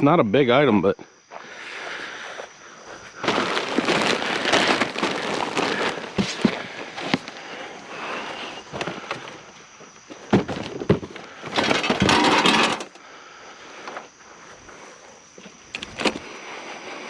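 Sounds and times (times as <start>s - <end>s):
scraping clatter: 10.3s - 13.0s
scrap metal clanks: 11.5s - 13.0s.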